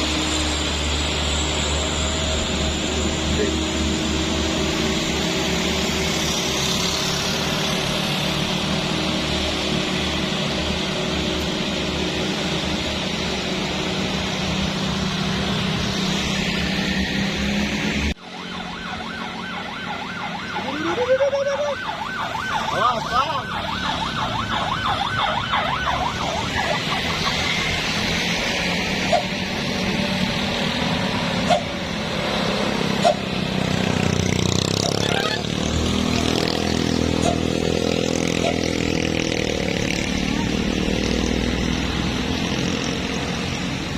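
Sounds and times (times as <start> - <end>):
passing traffic: 0.0 - 43.9
warbling siren: 0.0 - 43.9
truck engine under load: 26.8 - 43.9.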